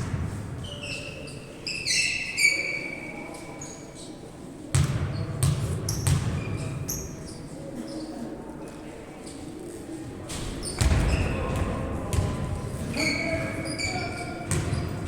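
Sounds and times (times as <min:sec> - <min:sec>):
shoes squeaking on hard floor: 0:12.9 - 0:15.0.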